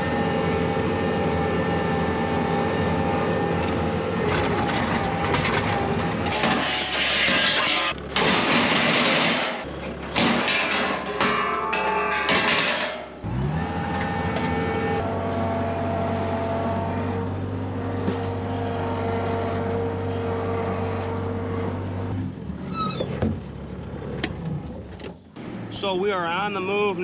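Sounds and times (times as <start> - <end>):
vehicle engine running: 13.2 - 22.7.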